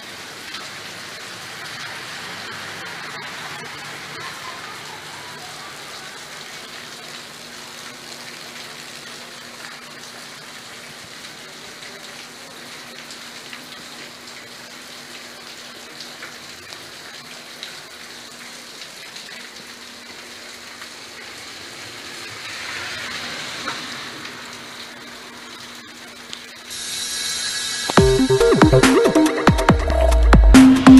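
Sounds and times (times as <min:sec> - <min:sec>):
water dripping and trickling: 0:00.0 - 0:28.7
rushing water: 0:00.0 - 0:30.3
rain falling: 0:00.0 - 0:30.9.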